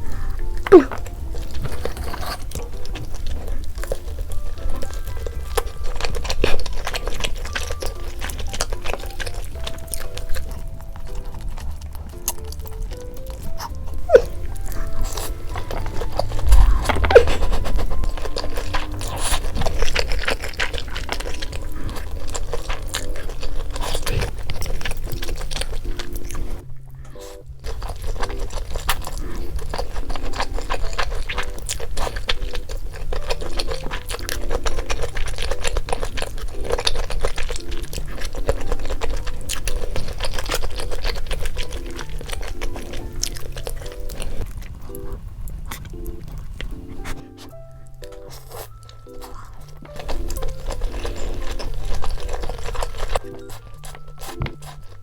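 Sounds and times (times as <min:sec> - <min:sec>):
crunching and chewing fried chicken: 0:00.0 - 0:55.0
light background music: 0:00.0 - 0:55.0.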